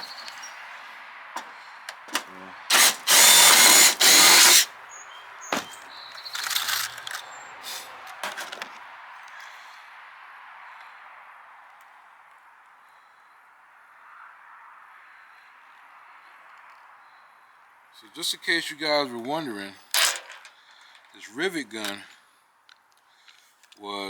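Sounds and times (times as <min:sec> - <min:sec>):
power drill drilling into metal: 0:01.4 - 0:04.7, 0:05.5 - 0:08.0
clicks of metal parts handled: 0:05.5 - 0:08.8, 0:19.9 - 0:21.1.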